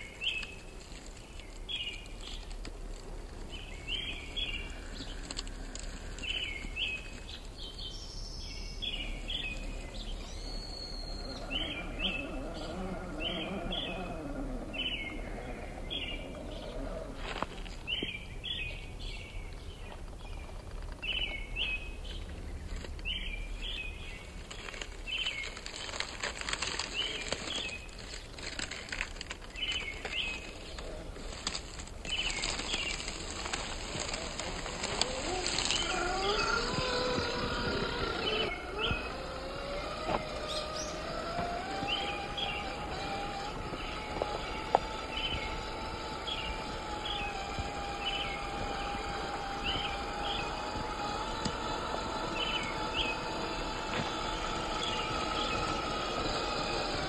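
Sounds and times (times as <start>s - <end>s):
songbird chirping: 0.0s - 57.0s
whine rising in pitch: 33.8s - 57.0s.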